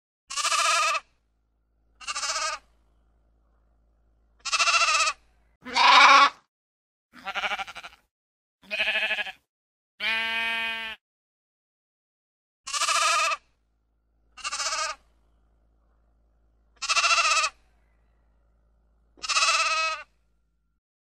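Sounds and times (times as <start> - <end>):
sheep bleating: 0.3 - 1.0, 2.0 - 2.6, 4.4 - 6.4, 7.2 - 9.4, 10.0 - 11.0, 12.7 - 13.4, 14.4 - 15.0, 16.8 - 17.6, 19.2 - 20.1.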